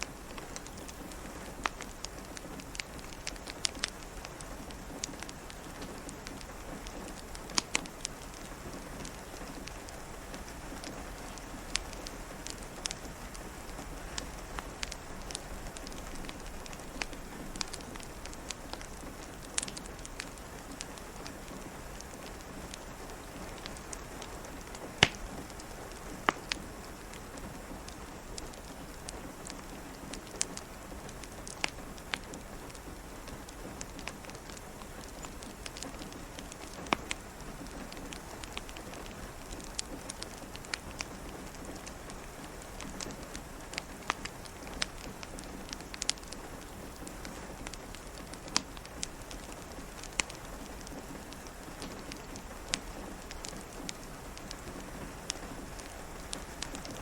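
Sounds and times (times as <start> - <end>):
rain hiss: 0.0 - 57.0
wood fire crackling: 0.0 - 57.0.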